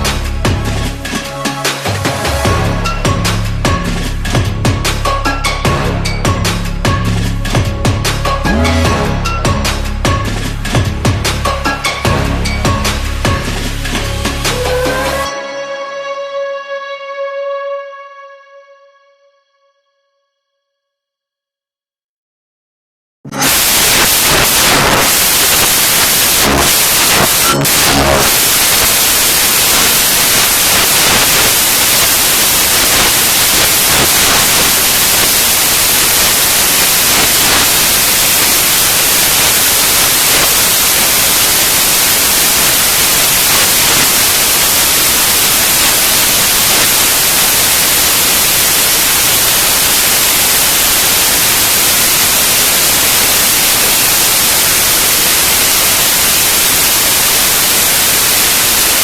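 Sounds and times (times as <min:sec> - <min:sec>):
static hiss: 0:23.3 - 0:59.0.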